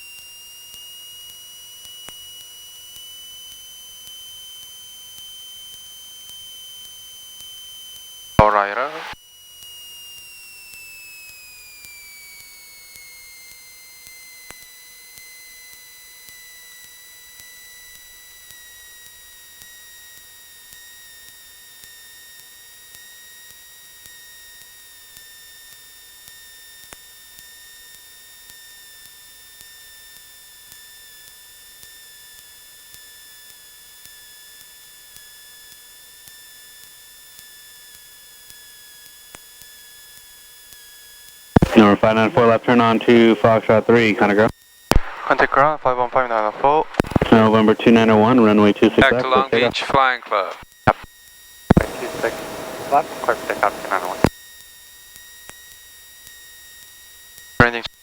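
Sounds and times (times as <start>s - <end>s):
high electrical whine in headset: 51.7s - 54.3s.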